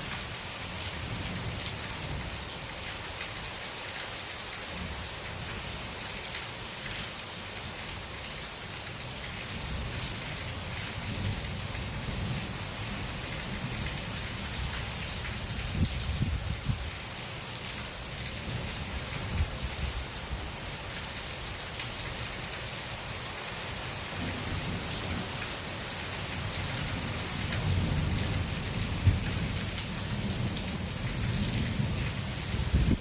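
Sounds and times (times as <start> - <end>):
heavy rain hissing: 19.4 - 33.0.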